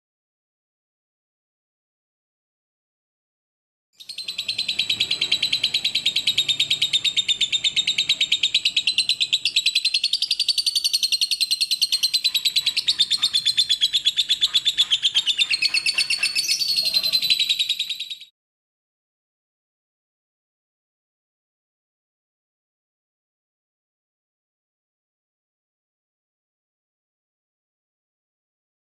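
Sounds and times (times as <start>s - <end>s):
lovebird trilling: 4.0s - 18.3s.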